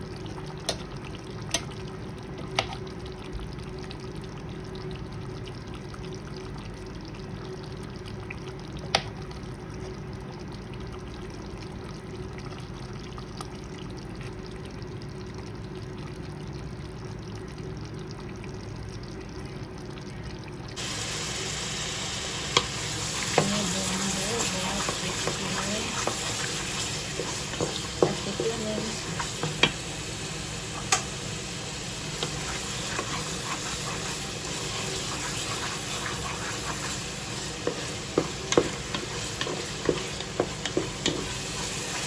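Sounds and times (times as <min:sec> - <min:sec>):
steady low cooking noise: 0:00.0 - 0:42.0
food sizzling in pan: 0:20.7 - 0:42.0.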